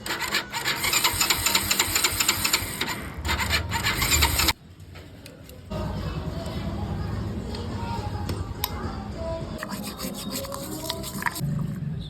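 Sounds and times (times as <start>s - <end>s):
starter motor cranking: 0.0s - 4.6s.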